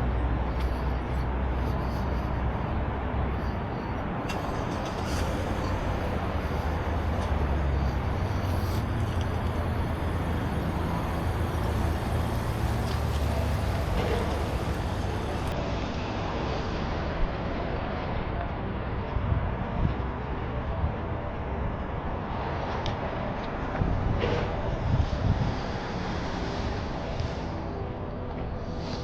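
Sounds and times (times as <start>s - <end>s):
engines running close by: 0.0s - 18.8s
traffic rumble: 0.0s - 29.0s.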